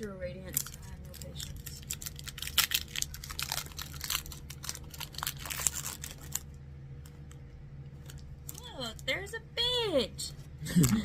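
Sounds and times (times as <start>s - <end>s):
foil wrapper tearing and crinkling: 0.4s - 7.2s.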